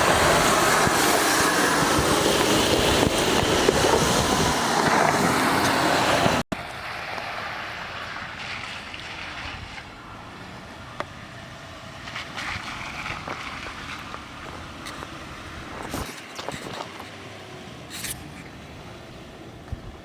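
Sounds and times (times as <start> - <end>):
wind noise on microphone: 0.0 - 7.1, 8.2 - 10.1, 12.4 - 17.2, 19.6 - 20.0
vehicle driving off-road: 0.0 - 20.0.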